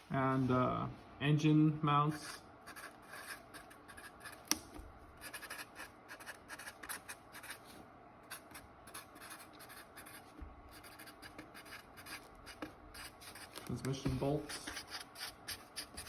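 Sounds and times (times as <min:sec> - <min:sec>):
pen scratching on paper: 0:02.1 - 0:04.5, 0:05.2 - 0:07.7, 0:08.3 - 0:16.0.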